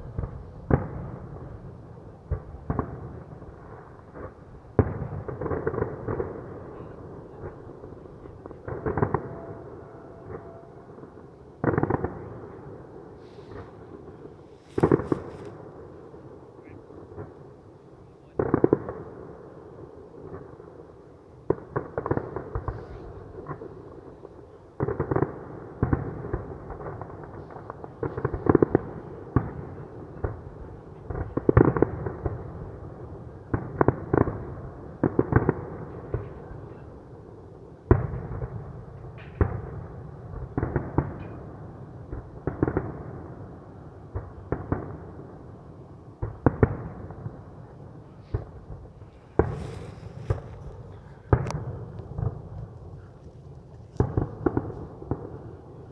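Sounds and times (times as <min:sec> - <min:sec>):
fireworks crackle: 0:00.0 - 0:15.6, 0:46.2 - 0:55.9
fireworks booming: 0:00.0 - 0:15.9, 0:46.2 - 0:55.9.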